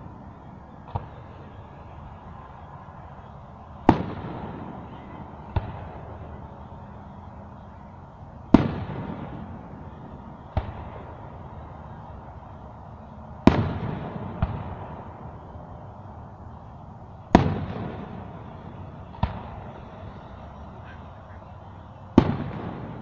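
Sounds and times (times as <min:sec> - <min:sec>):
fireworks booms: 0:00.0 - 0:01.9, 0:03.8 - 0:06.7, 0:08.5 - 0:12.2, 0:13.4 - 0:15.7, 0:17.3 - 0:20.4, 0:22.1 - 0:23.0
smaller fireworks bangs: 0:00.0 - 0:23.0.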